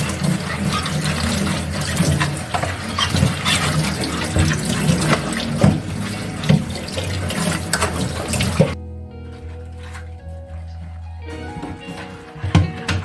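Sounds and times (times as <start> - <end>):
clatter of dishes being rinsed: 0.0 - 8.8
tap running into sink: 0.0 - 8.8
soft background music: 0.0 - 13.0.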